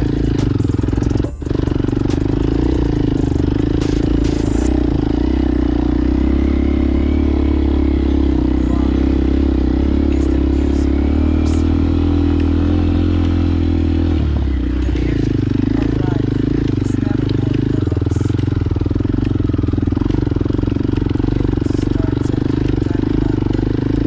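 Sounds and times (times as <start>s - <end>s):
motorcycle engine running steadily: 0.0s - 24.0s.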